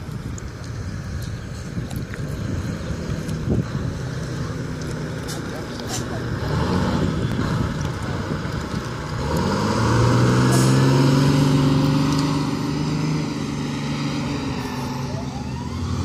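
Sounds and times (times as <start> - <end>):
fire engine diesel engine: 0.0 - 16.0
siren winding up: 15.0 - 16.0.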